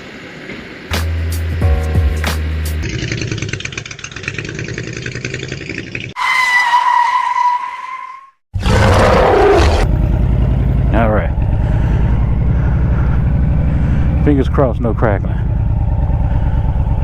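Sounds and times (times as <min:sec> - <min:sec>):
motorcycle engine running: 0:01.6 - 0:06.2, 0:09.8 - 0:17.0.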